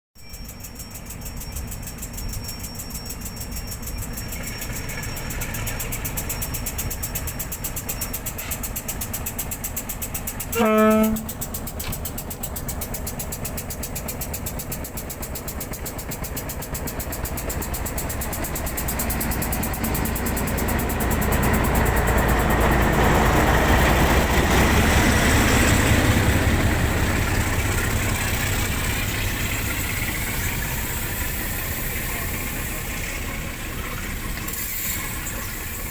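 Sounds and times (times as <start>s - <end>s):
electric train running: 0.2s - 35.9s
train horn blast: 10.5s - 11.4s.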